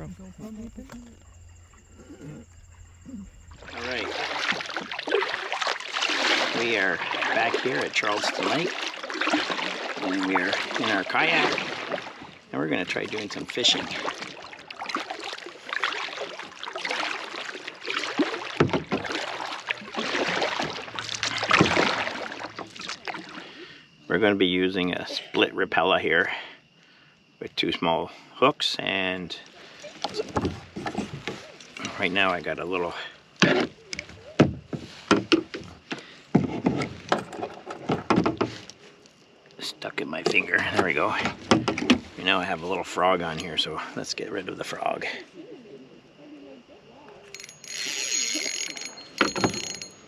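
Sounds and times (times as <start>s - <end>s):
kayak paddle splashing water: 0.0s - 23.6s, 29.4s - 39.4s, 40.2s - 43.9s
knocks: 36.3s - 38.6s
fishing tackle knocking: 48.5s - 50.0s.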